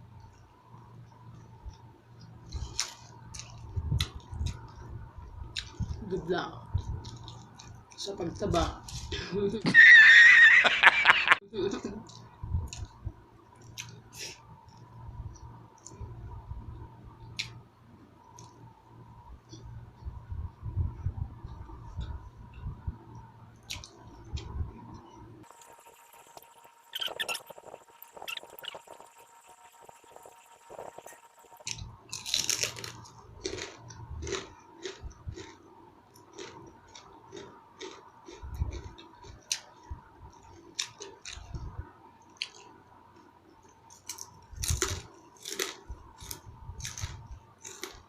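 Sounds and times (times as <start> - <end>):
chewing crispy fried food: 1.0 - 9.2, 23.2 - 48.0.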